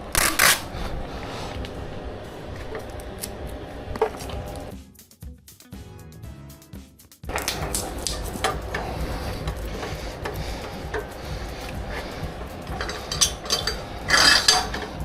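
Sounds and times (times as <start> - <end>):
steady low rumble: 0.0 - 4.7, 7.3 - 15.0
battery packs clicking on chargers: 7.3 - 8.9.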